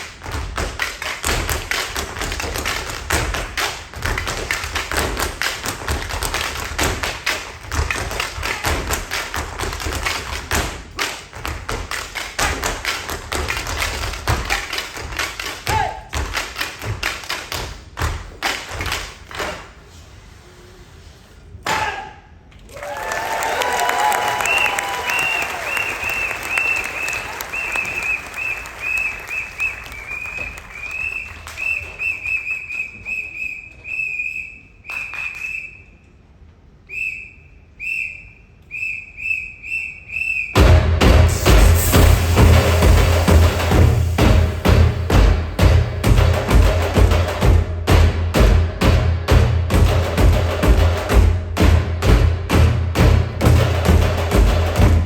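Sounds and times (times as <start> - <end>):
tap dancers stamping: 0.0 - 19.7, 40.6 - 55.0
audience cheering and clapping: 22.6 - 33.0, 40.6 - 47.2
high whistle: 24.3 - 36.1, 36.8 - 40.6
sharp hit: 40.6 - 48.6.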